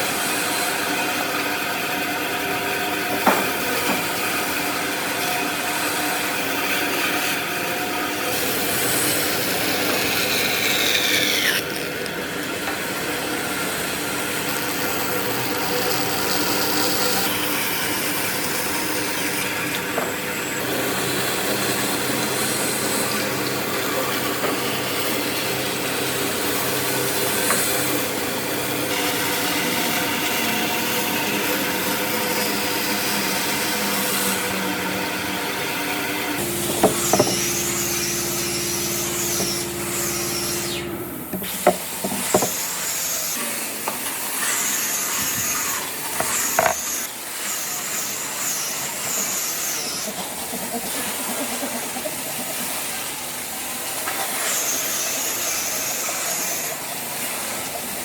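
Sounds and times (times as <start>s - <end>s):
power tool grinding wood: 0.0s - 58.0s
sharp knocks: 36.6s - 37.4s.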